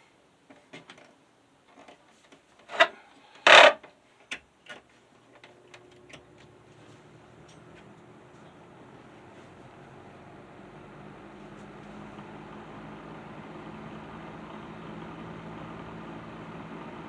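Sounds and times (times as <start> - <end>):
fan motor humming: 5.8 - 17.0.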